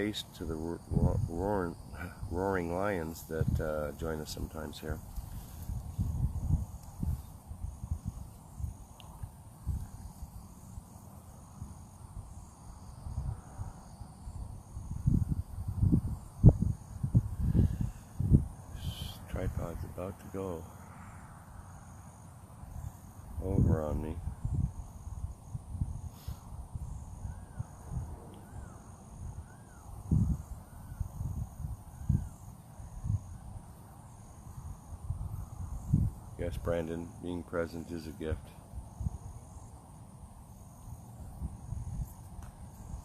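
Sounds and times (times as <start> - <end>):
low buffeting on microphone: 0.0 - 11.0, 12.2 - 20.4, 22.7 - 36.7
insects trilling in bursts: 0.0 - 43.0
faint high drone: 17.4 - 24.4, 26.2 - 35.6.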